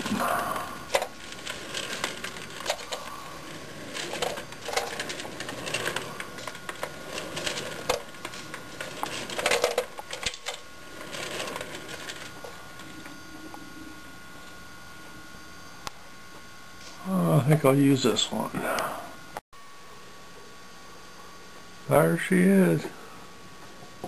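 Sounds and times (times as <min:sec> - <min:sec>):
rustling: 0:00.0 - 0:13.1.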